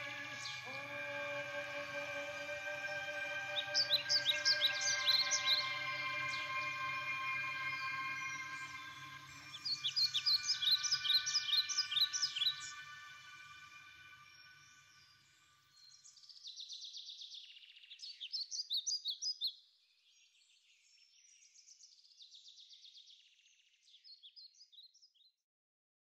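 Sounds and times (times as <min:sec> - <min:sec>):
recorded song: 0:00.0 - 0:15.1.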